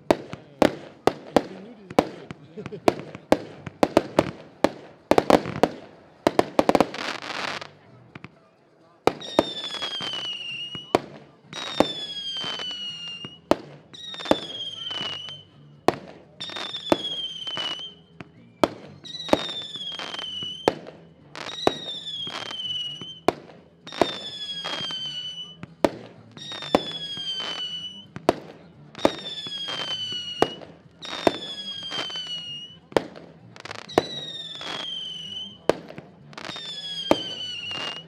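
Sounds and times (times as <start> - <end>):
firework bangs: 0.0 - 8.4, 9.0 - 38.0
firework cracks: 0.0 - 8.4, 9.1 - 18.0, 18.6 - 38.0
firework whistle: 9.1 - 15.7, 16.3 - 25.6, 26.3 - 38.0.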